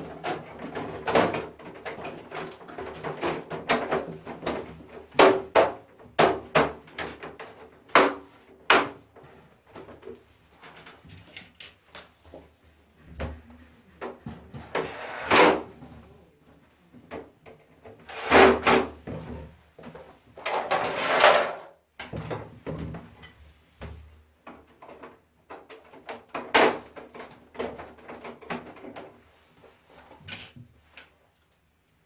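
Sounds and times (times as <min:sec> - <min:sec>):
panels sliding and scraping: 0:13.4 - 0:16.4, 0:17.9 - 0:21.7.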